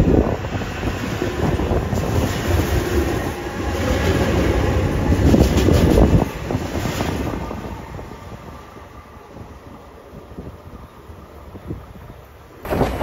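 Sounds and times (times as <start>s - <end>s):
train wheels rumbling and clicking: 0.0s - 8.6s, 12.6s - 13.0s.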